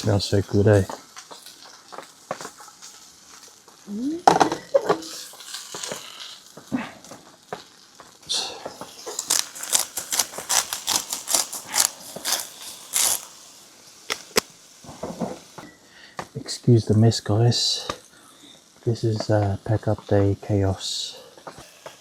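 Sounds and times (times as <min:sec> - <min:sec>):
utensil scraping a frying pan: 0:04.6 - 0:06.5.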